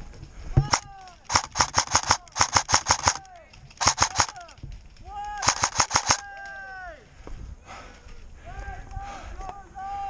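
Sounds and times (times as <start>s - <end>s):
airsoft gun firing bursts: 0.6s - 4.5s, 5.4s - 6.2s.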